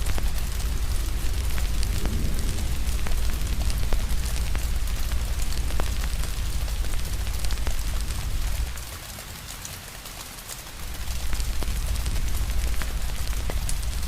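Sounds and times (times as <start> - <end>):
rain hiss: 0.0 - 14.0
wood fire crackling and popping: 0.0 - 14.0.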